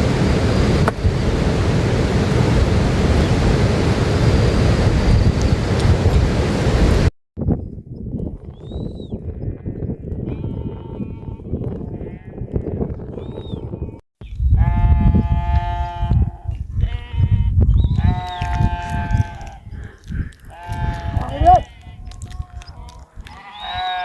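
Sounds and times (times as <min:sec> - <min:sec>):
rumbling noise: 0:00.0 - 0:07.1
small livestock bleating: 0:10.3 - 0:12.5, 0:14.6 - 0:19.7, 0:20.4 - 0:24.0.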